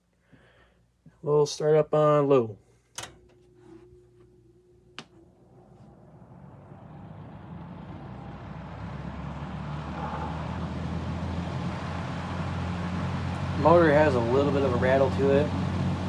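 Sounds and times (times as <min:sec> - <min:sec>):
box fan motor humming: 0:02.8 - 0:16.0
fan motor rattle: 0:02.8 - 0:16.0
fan switch click: 0:02.9 - 0:03.9.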